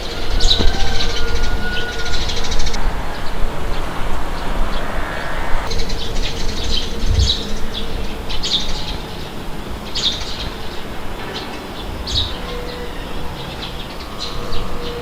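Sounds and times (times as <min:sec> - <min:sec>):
wind rumbling: 0:00.0 - 0:15.0
small birds chirping: 0:05.6 - 0:15.0.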